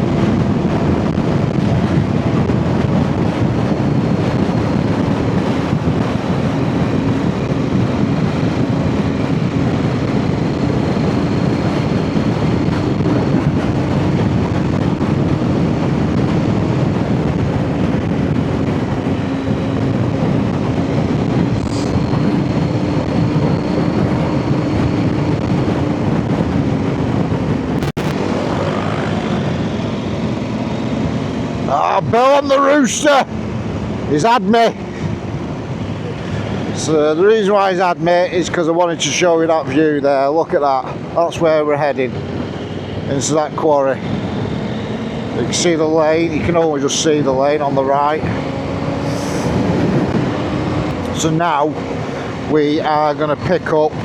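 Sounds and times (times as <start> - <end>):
off-road motorcycle engine: 0.0 - 37.3
rumbling ride and wind noise: 0.0 - 54.0.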